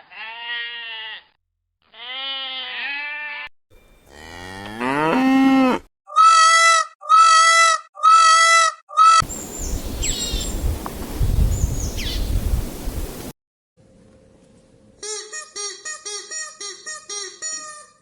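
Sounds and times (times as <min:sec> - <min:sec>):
high falling bird chirps: 0:09.2 - 0:13.2.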